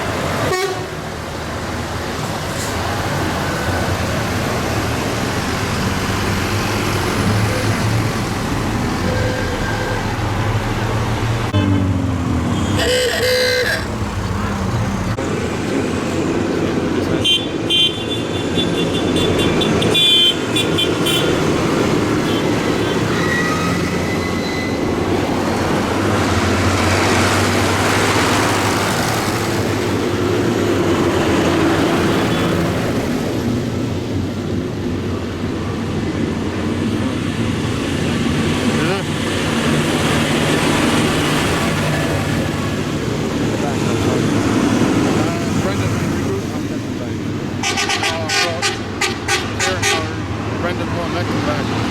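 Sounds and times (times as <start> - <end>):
tractor engines running: 0.0 - 17.7, 18.8 - 51.9
horns tooting: 0.4 - 1.0, 11.5 - 14.6, 17.1 - 25.1, 47.6 - 50.3.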